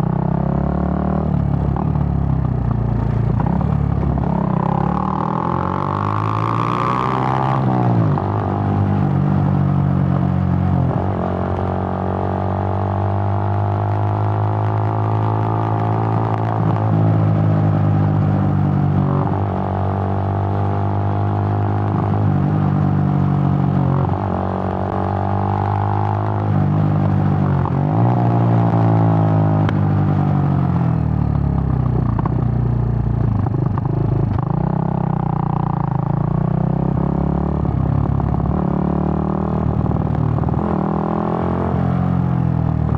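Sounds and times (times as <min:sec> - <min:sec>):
motorcycle engine running: 0:00.0 - 0:11.9, 0:21.7 - 0:42.9.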